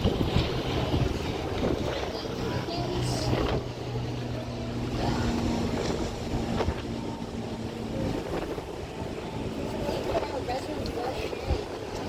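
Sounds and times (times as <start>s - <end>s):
ship machinery hum: 0.0s - 12.0s
wind noise on microphone: 0.0s - 12.0s.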